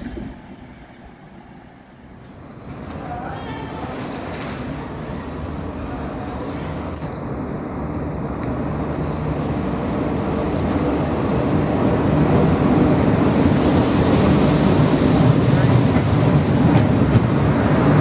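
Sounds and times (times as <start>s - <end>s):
electric train rumble and hum: 0.0s - 18.0s
train hiss: 12.6s - 18.0s.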